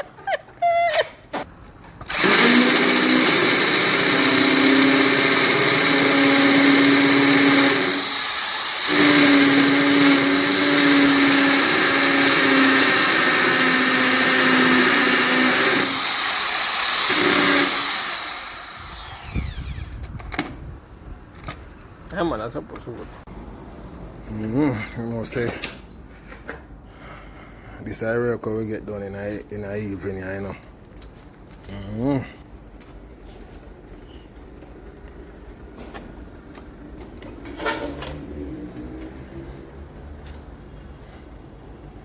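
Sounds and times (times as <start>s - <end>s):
electric power tool running: 2.1s - 20.0s.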